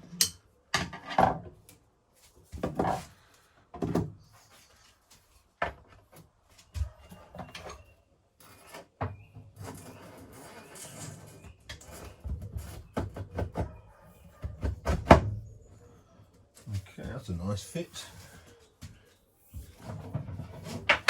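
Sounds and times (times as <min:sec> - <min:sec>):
plumbing parts knocking and scraping: 0:06.8 - 0:15.4, 0:18.3 - 0:21.0.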